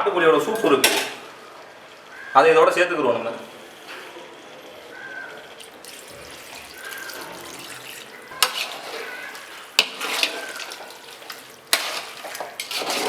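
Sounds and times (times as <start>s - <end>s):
liquid poured into a pot: 5.6s - 13.0s
metal spoon clanking on pot: 5.6s - 13.0s
scraping and sloshing: 5.6s - 13.0s.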